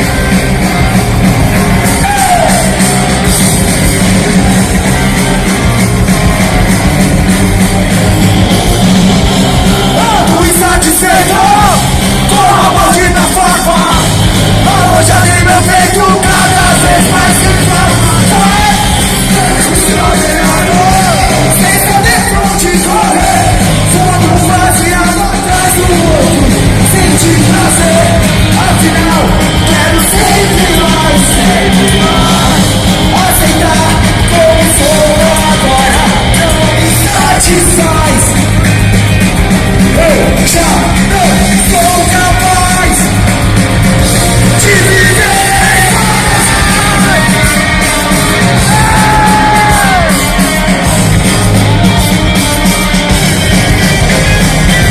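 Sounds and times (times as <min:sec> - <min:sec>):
rock band playing live: 0:00.0 - 0:54.9
person singing and yelling: 0:09.8 - 0:38.4, 0:44.4 - 0:50.8.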